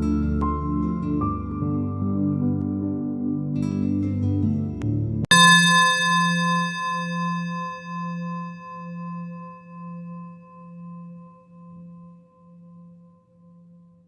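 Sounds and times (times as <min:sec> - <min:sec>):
singing bowl ringing: 0:05.3 - 0:14.0.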